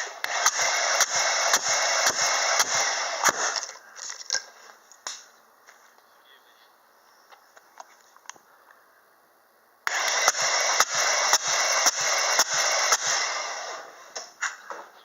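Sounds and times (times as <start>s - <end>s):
starter motor cranking engine: 0.0s - 4.1s, 9.9s - 14.4s.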